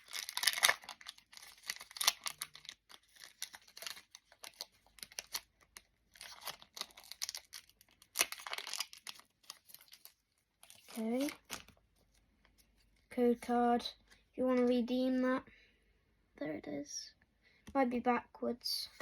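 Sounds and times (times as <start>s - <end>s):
foil card pack tearing: 0.0s - 5.5s, 6.1s - 11.7s
foil wrapper crinkling: 0.0s - 11.8s.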